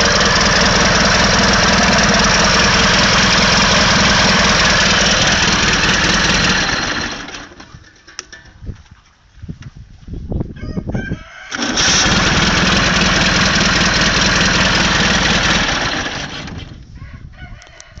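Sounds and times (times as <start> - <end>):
motorcycle engine revving: 0.0 - 7.6, 11.6 - 16.7.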